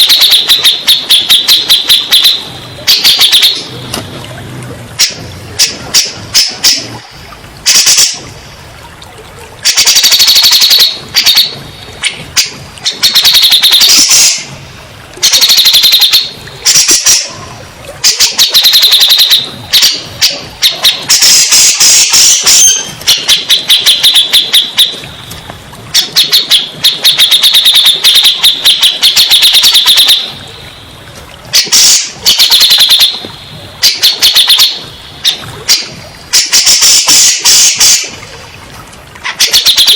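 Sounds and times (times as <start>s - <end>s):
bulbul singing chattering notes: 0.0s - 4.0s, 9.6s - 14.5s, 18.0s - 30.5s.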